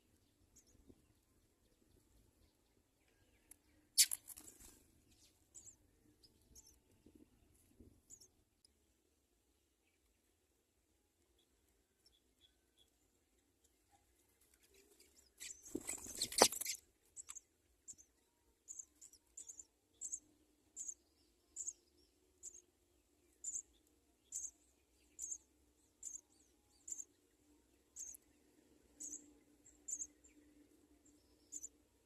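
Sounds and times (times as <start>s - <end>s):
sparrow chicks cheeping: 0.1s - 7.2s, 8.0s - 8.4s, 11.4s - 13.1s, 14.0s - 32.0s
rustling and fluttering: 4.0s - 5.0s, 14.4s - 16.8s.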